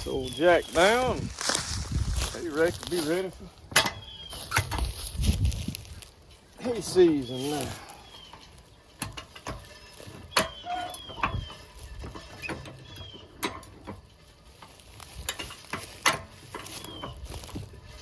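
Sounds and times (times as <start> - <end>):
sharp clicks and knocks: 3.7 - 5.0, 8.9 - 17.7.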